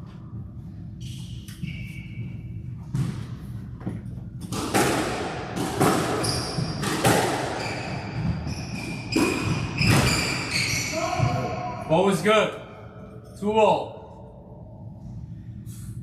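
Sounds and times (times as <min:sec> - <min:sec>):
squash ball hits: 0:04.4 - 0:10.5
high squeaks: 0:07.6 - 0:11.5.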